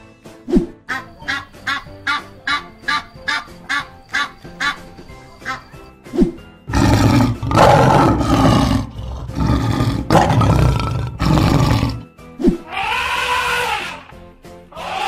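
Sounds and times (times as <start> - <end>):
background music: 0.0 - 15.0
lion roaring: 6.7 - 12.0.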